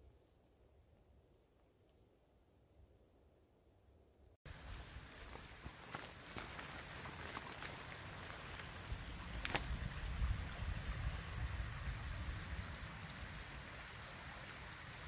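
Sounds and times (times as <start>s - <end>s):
footstep crunching in snow: 4.5s - 9.9s
wind buffeting microphone: 8.6s - 12.8s.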